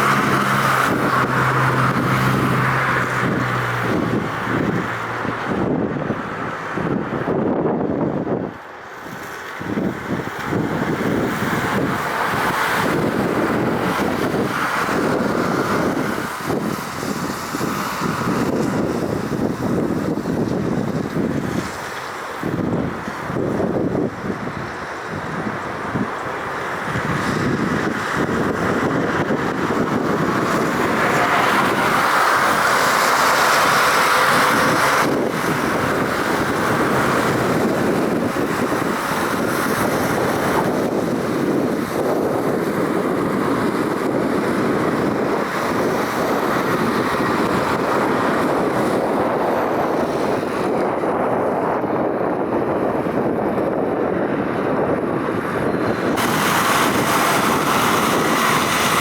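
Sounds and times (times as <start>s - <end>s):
water spray hissing: 0.0s - 5.2s, 11.0s - 23.3s, 24.6s - 50.7s, 55.9s - 59.0s
jet engines roaring: 0.0s - 8.7s, 9.4s - 59.0s
wind on microphone: 0.0s - 59.0s.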